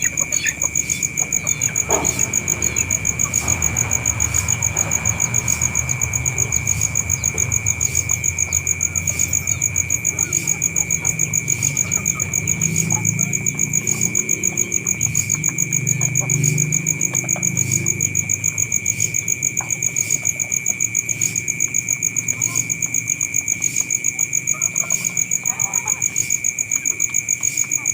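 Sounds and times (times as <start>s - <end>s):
insects chirping: 0.0s - 27.9s
low rumble: 1.1s - 13.4s.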